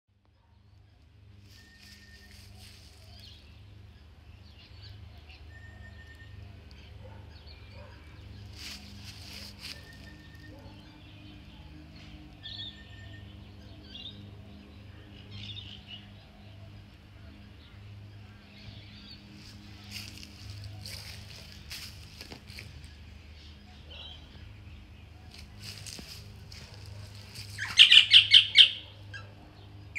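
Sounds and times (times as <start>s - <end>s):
small birds chirping: 0.7s - 5.5s, 6.6s - 29.9s
faint ticks and rustles: 19.4s - 23.0s
bird chirping loudly: 27.4s - 29.3s.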